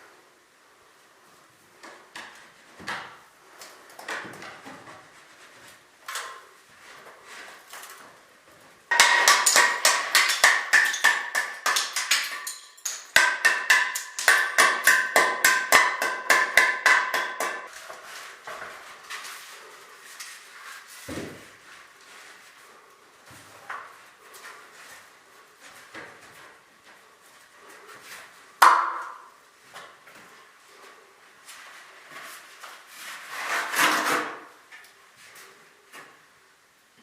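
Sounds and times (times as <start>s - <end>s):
hammer striking metal: 8.9s - 17.7s.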